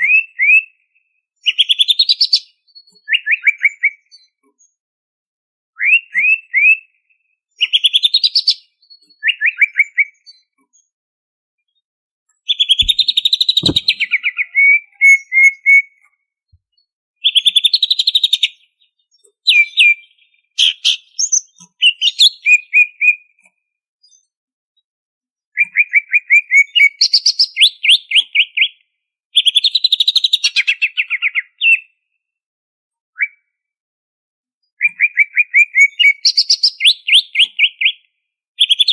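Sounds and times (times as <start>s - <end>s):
bird singing trilled phrases: 1.4s - 4.8s, 7.6s - 10.6s, 12.5s - 15.8s, 17.2s - 23.2s, 25.6s - 28.8s, 34.7s - 38.0s, 38.6s - 38.9s.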